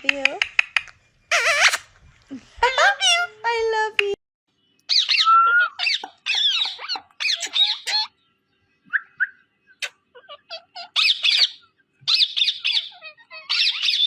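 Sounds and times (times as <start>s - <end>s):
parrot squawking: 1.3s - 1.9s, 4.9s - 8.2s, 9.8s - 14.0s.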